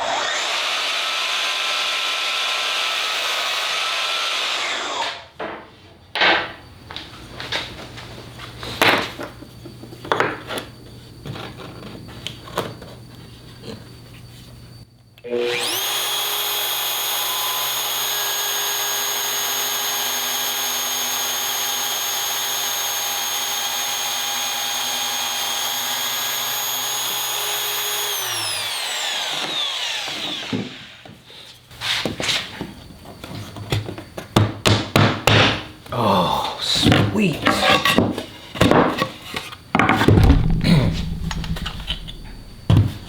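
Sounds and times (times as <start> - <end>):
power tool motor whining: 15.2 - 31.2
wood knocking and clattering: 36.8 - 43.0.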